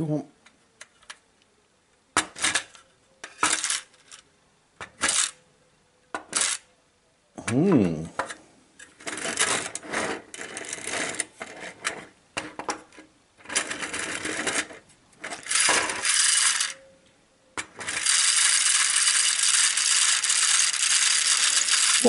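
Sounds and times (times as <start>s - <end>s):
clockwork toy motor rattling: 3.5s - 4.2s, 5.0s - 5.4s, 6.3s - 6.6s, 13.5s - 16.8s, 17.7s - 22.0s.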